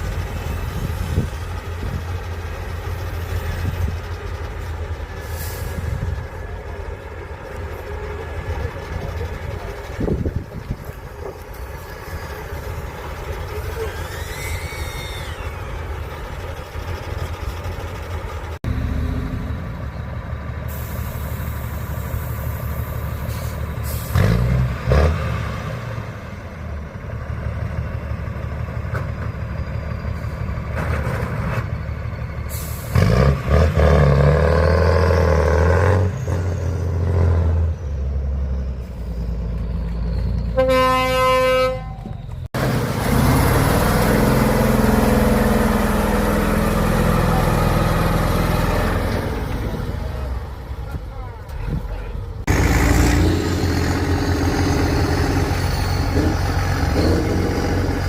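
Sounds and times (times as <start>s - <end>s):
truck engines revving: 0.0s - 58.0s
horn: 40.6s - 41.9s.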